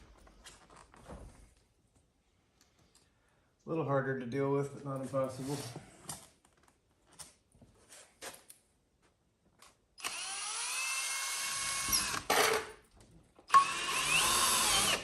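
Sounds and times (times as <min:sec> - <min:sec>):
power drill driving a screw: 0:10.0 - 0:12.7, 0:13.5 - 0:15.0.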